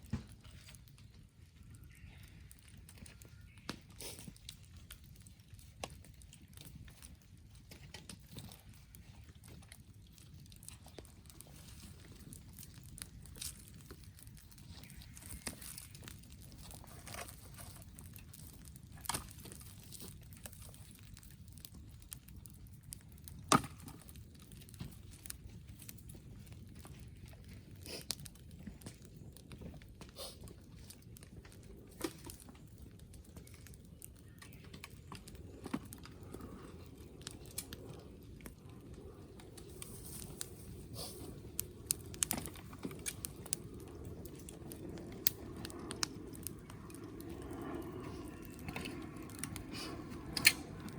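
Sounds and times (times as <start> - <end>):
wood fire crackling: 0.0 - 50.9
sharp pops and snaps: 39.3 - 47.0.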